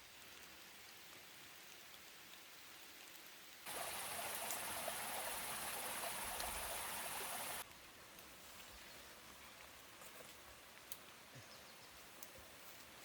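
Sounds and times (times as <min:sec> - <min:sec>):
rushing water-like hiss: 0:03.6 - 0:07.7.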